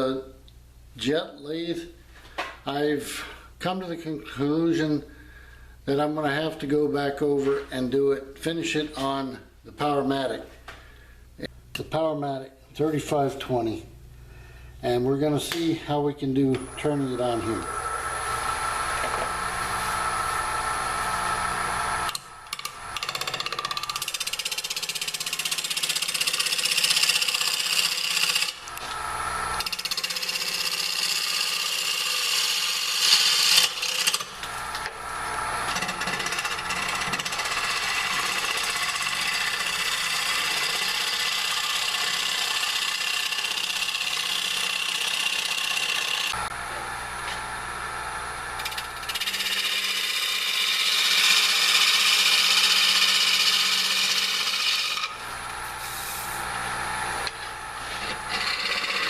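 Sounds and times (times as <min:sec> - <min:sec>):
lathe motor humming: 0:16.5 - 0:59.0
gouge cutting wood on a lathe: 0:16.6 - 0:59.0.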